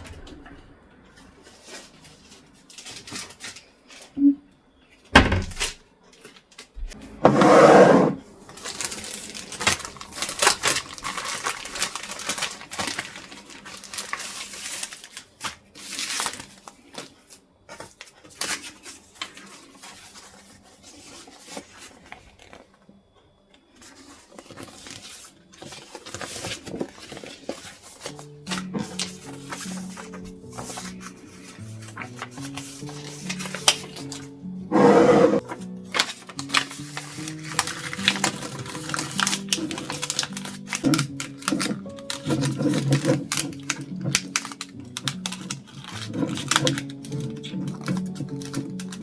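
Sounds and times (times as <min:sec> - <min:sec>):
loud rushing noise: 0:00.0 - 0:02.0.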